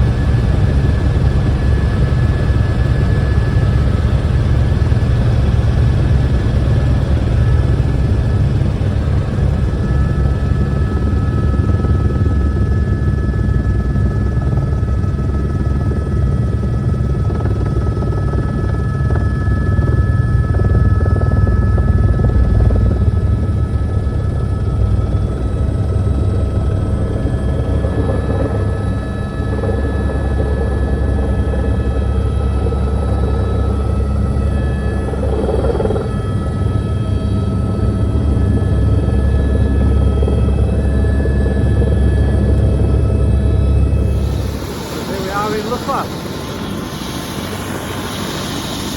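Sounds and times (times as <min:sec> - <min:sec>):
helicopter rotor and engine drone: 0:00.0 - 0:48.9
high whine: 0:40.0 - 0:48.9.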